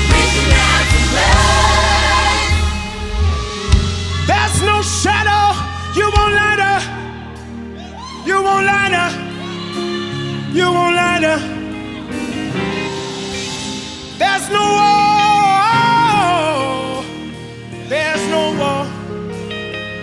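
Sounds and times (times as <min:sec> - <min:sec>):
person singing: 0:00.0 - 0:07.0
band accompaniment: 0:00.0 - 0:20.0.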